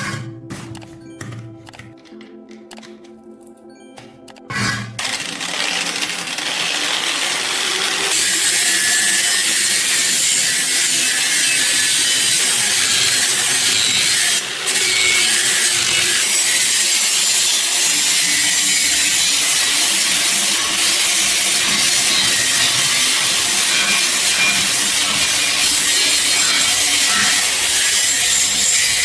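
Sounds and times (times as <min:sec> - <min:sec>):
power tool rasping on rusty metal: 0:05.0 - 0:29.0.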